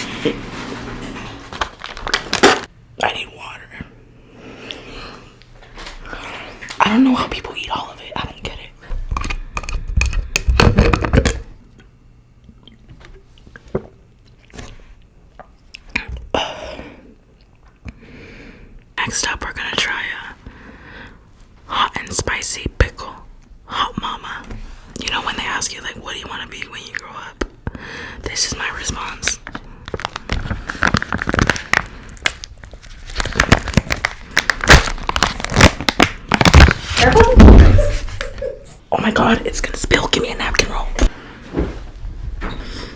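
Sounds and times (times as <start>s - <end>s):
plastic pouch crinkling and tearing: 1.5s - 2.7s, 29.4s - 37.3s
wet chewing sounds: 11.8s - 16.2s.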